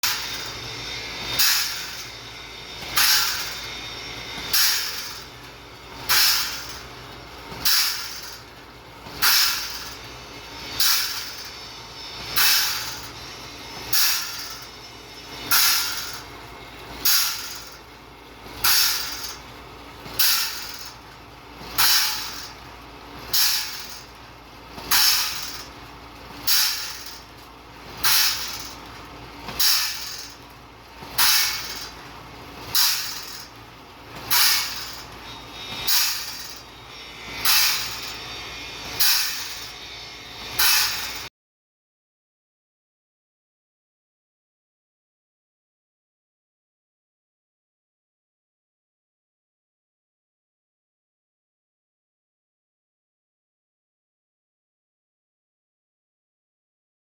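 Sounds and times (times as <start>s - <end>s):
machine running: 0.0s - 41.3s
saw blade grinding: 34.3s - 41.3s.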